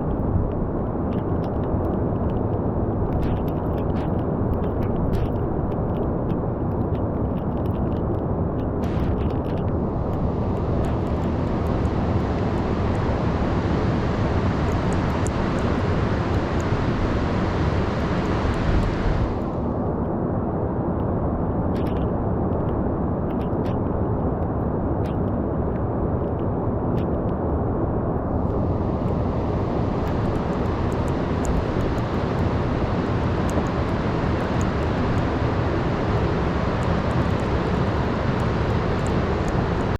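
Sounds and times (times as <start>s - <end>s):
wind: 0.0s - 39.9s
storm surf roaring: 8.8s - 20.0s, 28.1s - 39.9s.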